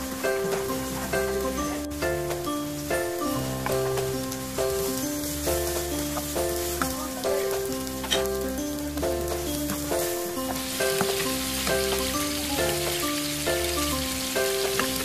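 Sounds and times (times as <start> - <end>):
instrumental background music: 0.0 - 15.0
shrimp paste sizzling in oil: 0.0 - 15.0
spatula stirring in a pan: 3.7 - 8.5, 9.2 - 15.0.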